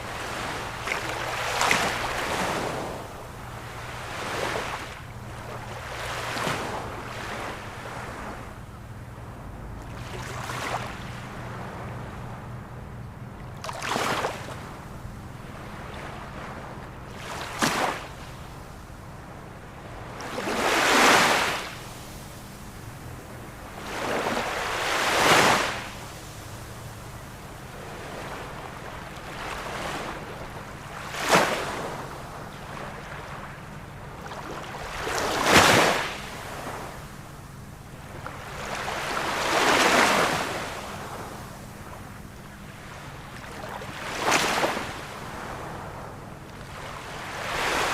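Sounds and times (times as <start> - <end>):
steady background wash: 0.0 - 47.9.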